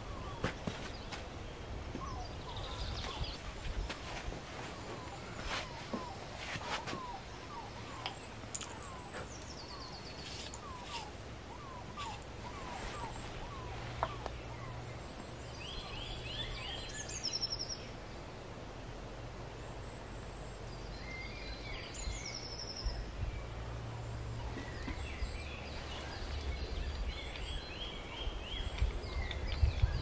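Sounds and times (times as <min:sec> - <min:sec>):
songbird singing trilled phrases: 0:06.9 - 0:18.0, 0:20.8 - 0:23.6.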